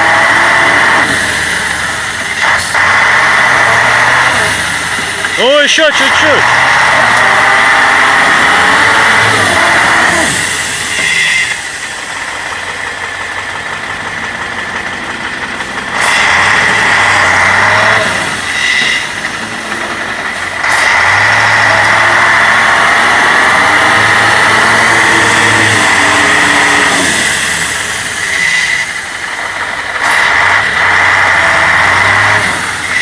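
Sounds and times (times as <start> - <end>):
truck engine revving hard: 0.0 - 33.0.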